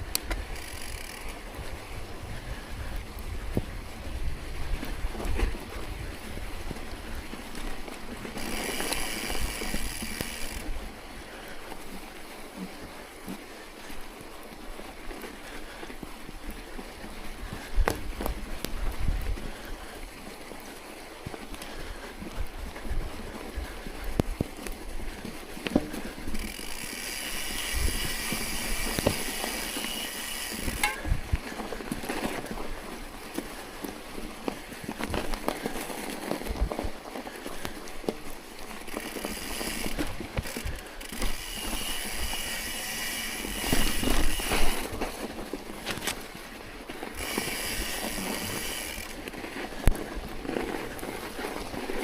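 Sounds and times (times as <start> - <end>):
wind buffeting microphone: 0.0 - 7.6, 17.2 - 20.0, 26.2 - 33.0
bicycle crunching through snow: 0.0 - 52.0.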